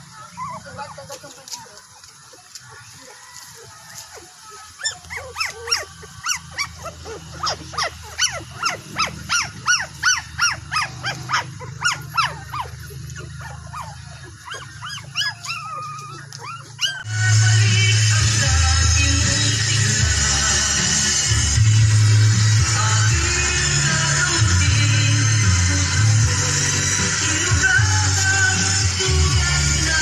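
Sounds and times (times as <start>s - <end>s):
puppy yelping and whining: 0.0s - 1.2s, 4.1s - 17.1s
loud background music: 17.0s - 30.0s.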